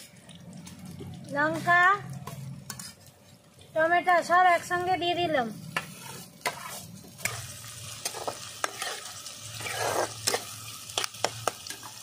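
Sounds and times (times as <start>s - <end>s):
vegetables sizzling in hot oil: 0.0s - 12.0s
metal spatula scraping a pan: 1.4s - 3.1s, 5.6s - 10.5s.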